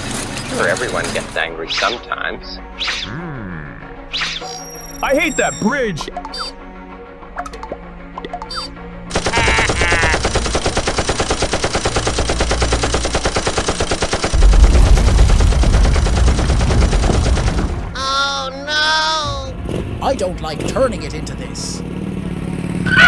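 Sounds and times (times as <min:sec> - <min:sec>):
rapid machine gun fire: 0:09.1 - 0:18.0.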